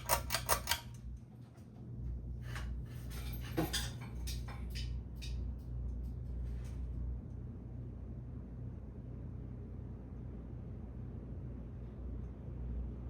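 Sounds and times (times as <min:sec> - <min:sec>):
ceiling fan humming: 0:00.0 - 0:13.0.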